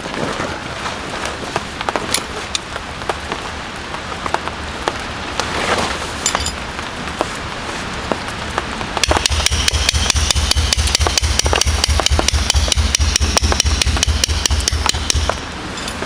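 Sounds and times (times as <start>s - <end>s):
steady rain: 0.0s - 16.0s
rapid ringing thuds: 9.0s - 16.0s.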